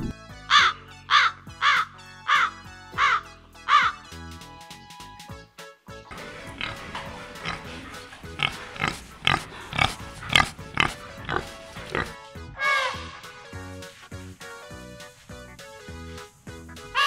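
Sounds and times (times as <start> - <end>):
pigs grunting: 6.1 - 13.2.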